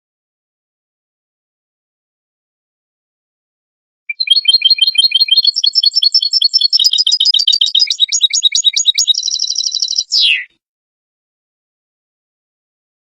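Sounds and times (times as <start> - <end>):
goldfinch twittering song: 4.1 - 10.5.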